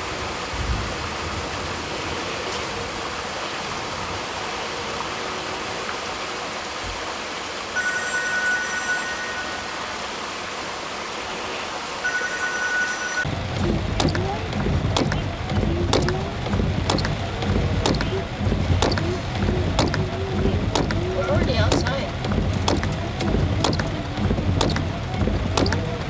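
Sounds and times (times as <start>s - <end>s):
floodwater rushing: 0.0s - 26.0s.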